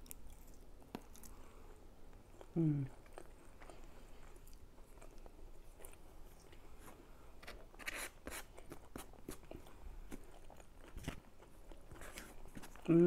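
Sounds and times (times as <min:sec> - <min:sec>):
chewing with mouth clicks: 0:00.0 - 0:06.8.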